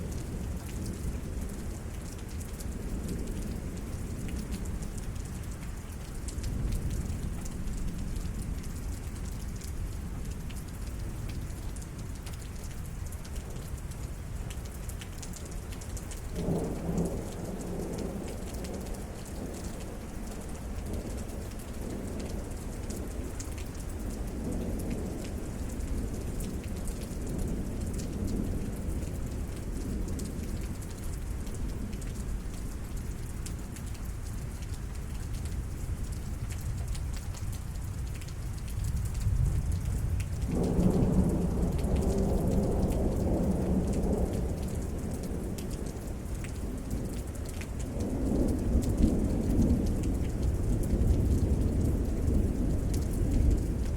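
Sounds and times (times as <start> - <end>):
steady rain: 0.0 - 53.9
rumbling thunder: 39.0 - 46.0.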